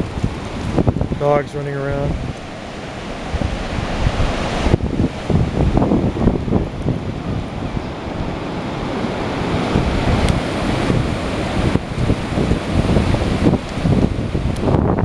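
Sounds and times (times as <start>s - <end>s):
ocean surf breaking: 0.0s - 15.0s
wind buffeting microphone: 0.0s - 15.0s.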